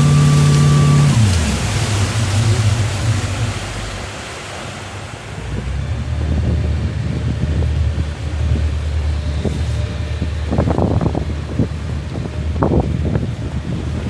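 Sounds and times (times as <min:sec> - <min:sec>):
boat engine rumble: 0:00.0 - 0:14.0
rushing water: 0:00.0 - 0:14.0
wind buffeting microphone: 0:05.2 - 0:14.0.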